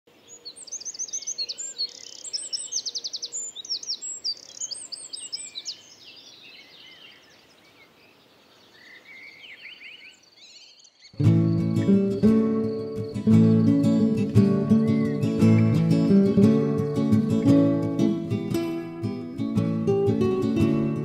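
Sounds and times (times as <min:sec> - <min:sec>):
birds chirping and trilling: 0:00.1 - 0:21.0
lower-pitched bird chirps: 0:00.2 - 0:18.6.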